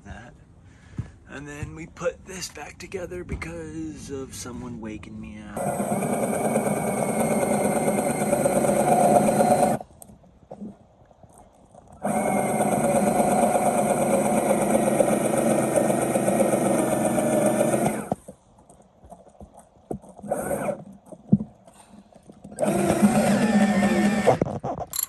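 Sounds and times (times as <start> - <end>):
power tool motor running: 5.6 - 9.8, 12.0 - 18.2, 20.3 - 20.8, 22.5 - 24.5.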